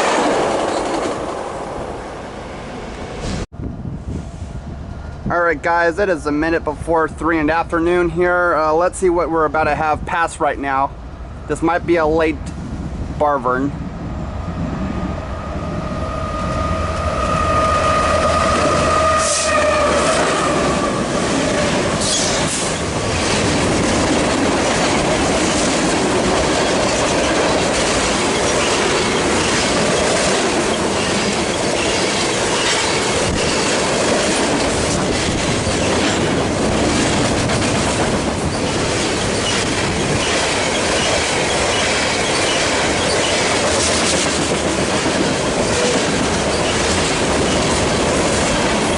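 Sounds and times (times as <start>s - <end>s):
freight train rolling on rails: 0.0s - 48.9s
high-pitched wheel squeal: 15.4s - 21.4s
wheels clicking over rail joints: 21.5s - 48.9s.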